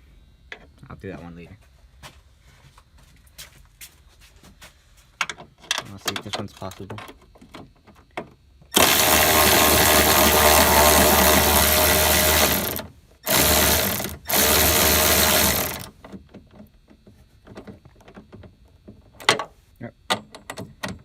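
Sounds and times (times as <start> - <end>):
cordless ratchet running: 8.7 - 15.9.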